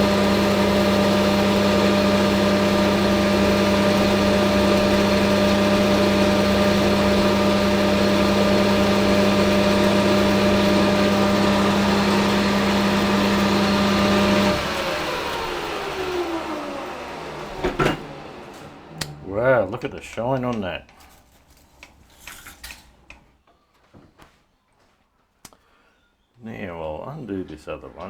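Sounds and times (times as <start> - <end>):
metal lathe running: 0.0 - 19.0
lathe spindle spinning down: 0.0 - 19.6.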